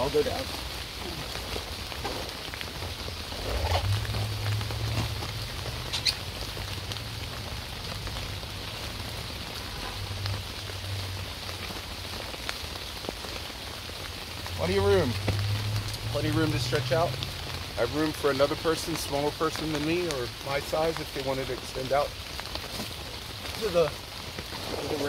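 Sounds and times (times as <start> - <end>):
rain pattering on a tarp: 0.0 - 25.0
rustling on a sleeping pad: 22.4 - 25.0.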